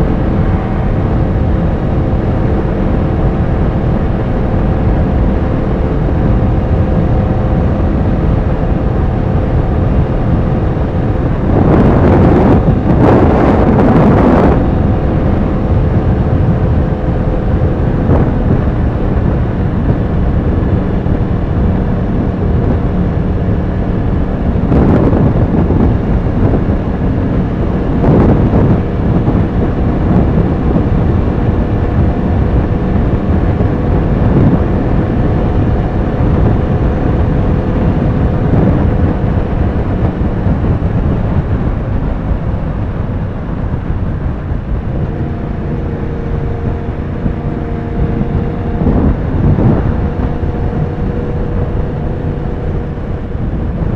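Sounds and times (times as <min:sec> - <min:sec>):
motorcycle engine running: 0:00.0 - 0:53.9
wind rushing over microphone: 0:00.0 - 0:53.9.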